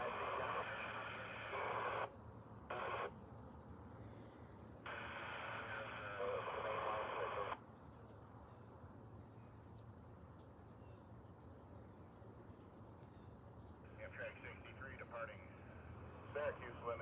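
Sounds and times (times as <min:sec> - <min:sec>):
tinny radio voice: 0:00.0 - 0:02.1, 0:05.5 - 0:07.6, 0:13.9 - 0:15.6, 0:16.3 - 0:17.0
faint radio hiss: 0:00.0 - 0:17.0.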